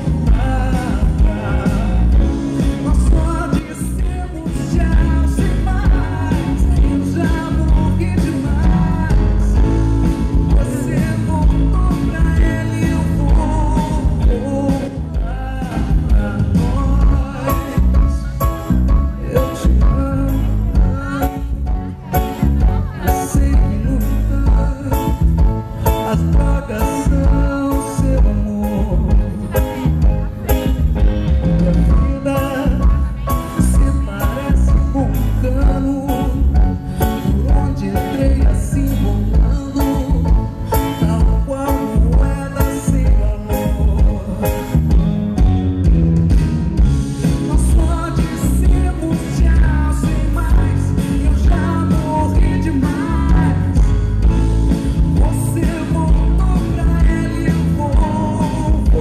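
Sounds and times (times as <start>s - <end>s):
woman singing: 0.0s - 9.8s, 31.6s - 36.6s
live band playing soul song: 0.0s - 59.0s.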